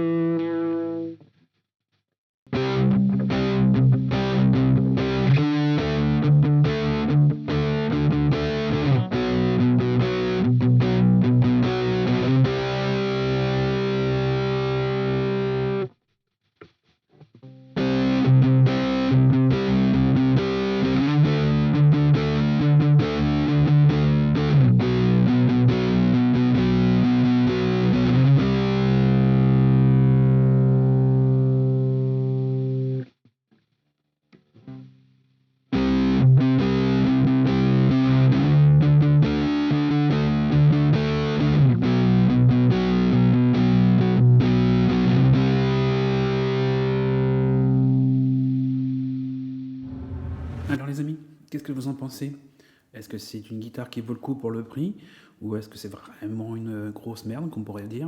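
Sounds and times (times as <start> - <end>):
distorted electric guitar chords: 0.0 - 1.2, 2.5 - 15.9, 17.3 - 33.0, 35.7 - 50.7.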